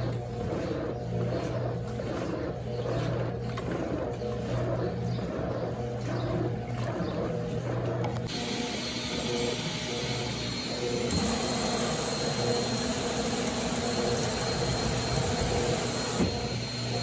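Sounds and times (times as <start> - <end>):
water churning and splashing: 0.0 - 8.3
washing machine motor hum: 0.0 - 17.0.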